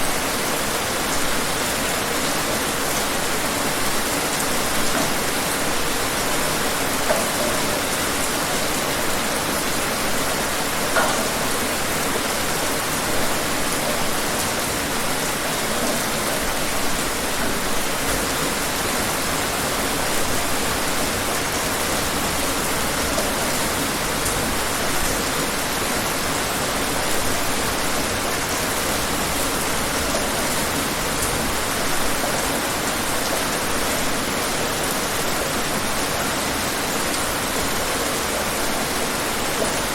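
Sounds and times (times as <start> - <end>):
raindrops pattering: 0.0 - 39.9
steady rain hiss: 0.0 - 39.9.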